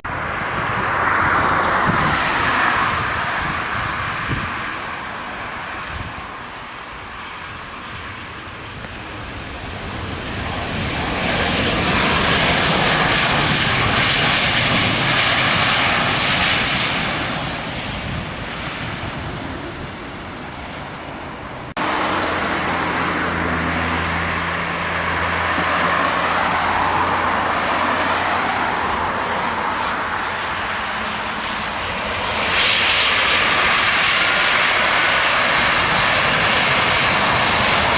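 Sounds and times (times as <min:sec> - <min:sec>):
rushing noise: 0:00.0 - 0:06.6, 0:19.6 - 0:31.3, 0:33.3 - 0:37.9
aircraft engines low hum: 0:00.0 - 0:37.9
jet airliner passing overhead: 0:00.0 - 0:37.9.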